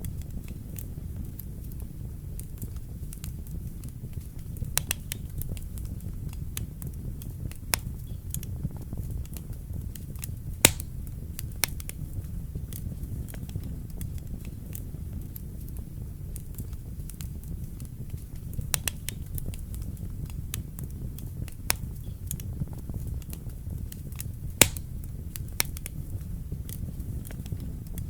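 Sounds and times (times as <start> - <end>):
low rumble of flames: 0.0 - 28.0
wood fire crackling and popping: 0.0 - 28.0.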